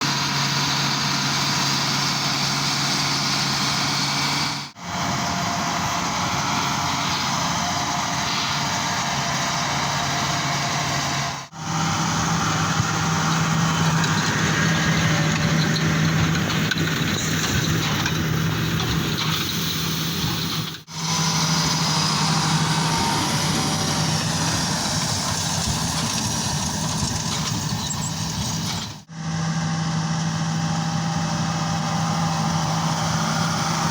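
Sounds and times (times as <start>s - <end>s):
tractor diesel engine running: 0.0s - 33.9s
baler mechanical clatter: 13.3s - 20.9s, 25.0s - 29.1s.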